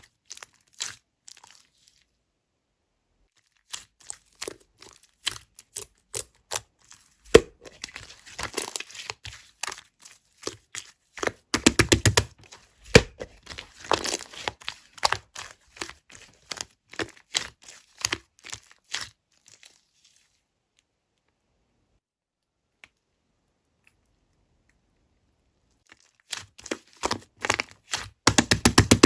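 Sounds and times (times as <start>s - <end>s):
slime clicking and crackling: 26.2s - 29.0s.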